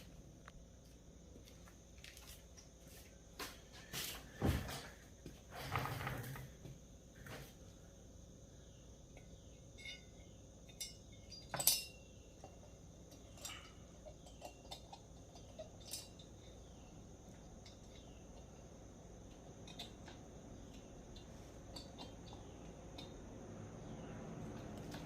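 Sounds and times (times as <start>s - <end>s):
small metal parts clinking: 9.8s - 12.0s.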